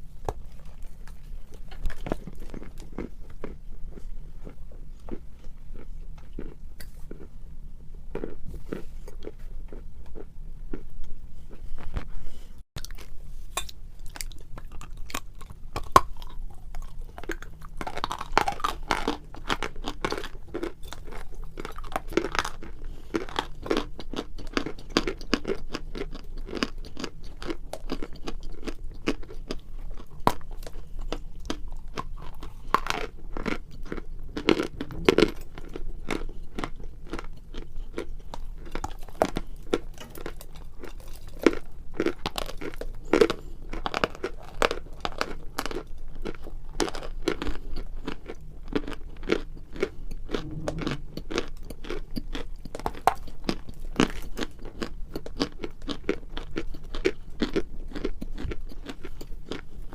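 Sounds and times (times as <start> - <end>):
person chewing crunchy clay: 0.0 - 12.2, 12.8 - 59.9.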